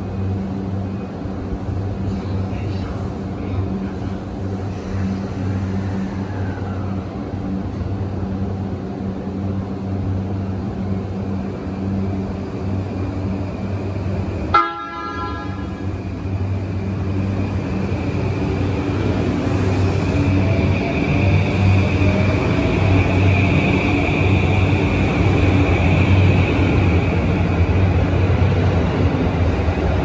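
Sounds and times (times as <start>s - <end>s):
electric train humming: 0.0s - 30.0s
train horn toot: 14.5s - 15.9s.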